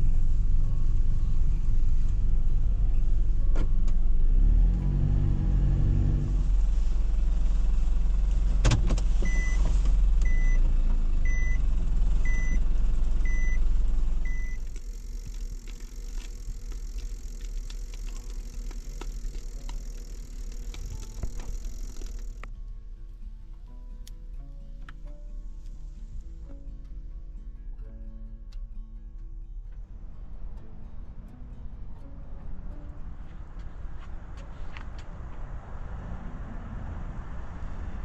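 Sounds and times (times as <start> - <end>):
van engine rumbling: 0.0 - 38.0
beeps: 9.2 - 9.6, 10.2 - 10.6, 11.3 - 11.6, 12.2 - 12.6, 13.2 - 13.6, 14.2 - 14.6.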